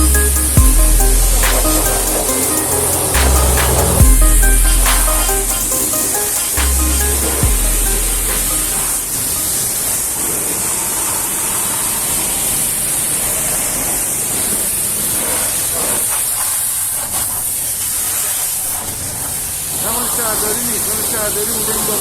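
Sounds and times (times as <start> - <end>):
pressure washer jet spraying: 0.1 - 9.6.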